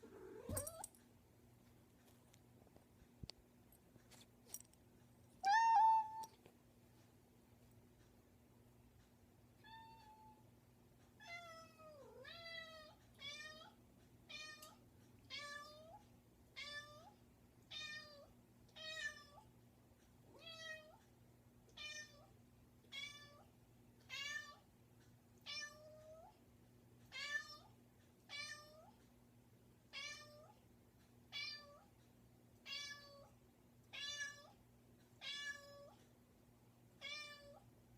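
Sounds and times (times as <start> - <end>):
cat meowing: 5.4 - 6.3.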